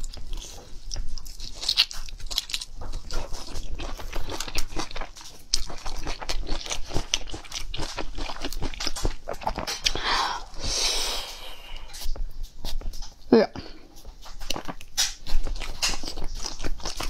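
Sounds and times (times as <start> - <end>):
chewing and biting meat: 0.0 - 10.6, 11.8 - 13.3, 13.9 - 17.0
wet mouth noises: 0.0 - 13.2.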